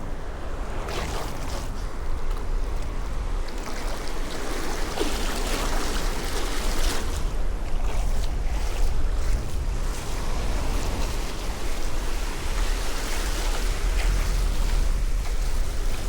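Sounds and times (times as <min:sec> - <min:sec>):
wind buffeting microphone: 0:00.0 - 0:16.0
surf breaking on beach: 0:06.0 - 0:16.0.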